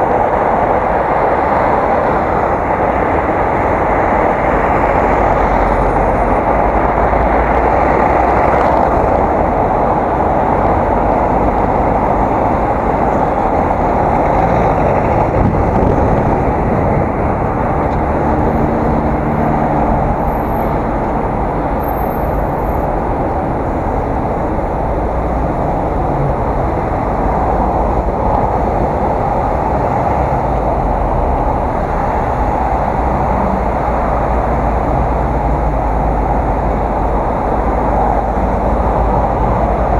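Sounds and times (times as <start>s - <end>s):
road noise: 0.0s - 39.9s
wind rush: 0.0s - 39.9s.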